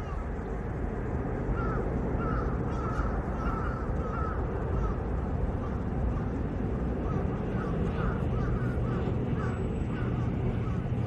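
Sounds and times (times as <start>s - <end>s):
bird calling: 1.6s - 5.0s, 7.0s - 10.9s.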